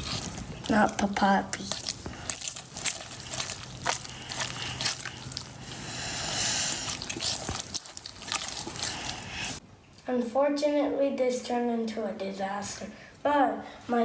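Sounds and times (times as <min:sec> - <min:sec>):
slime squelching: 0:00.0 - 0:09.6.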